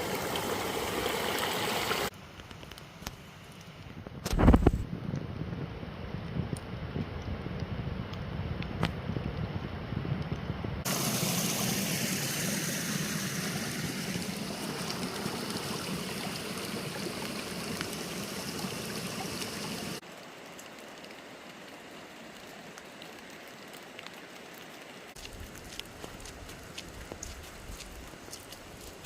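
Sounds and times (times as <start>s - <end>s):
creek water rushing: 0.0s - 2.1s, 10.9s - 29.0s.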